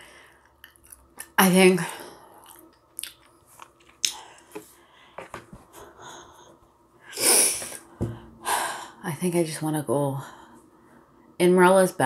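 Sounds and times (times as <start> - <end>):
soft chewing: 2.4 - 4.8
lip smacks and clicks: 2.5 - 4.2.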